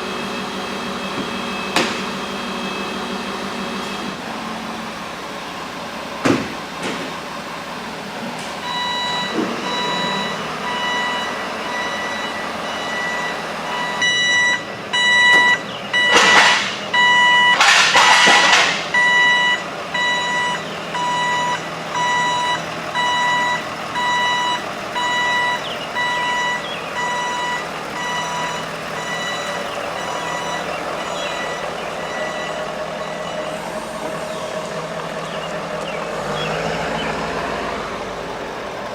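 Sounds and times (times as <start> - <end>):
backup alarm beeping: 8.6 - 33.8.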